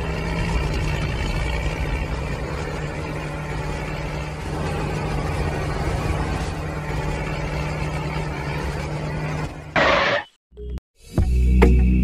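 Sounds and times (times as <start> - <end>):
tractor engine droning: 0.0 - 10.4.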